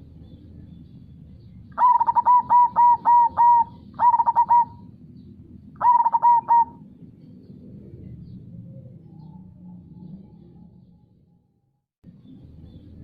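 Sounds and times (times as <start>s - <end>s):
dove cooing: 1.7s - 4.9s, 5.8s - 6.9s.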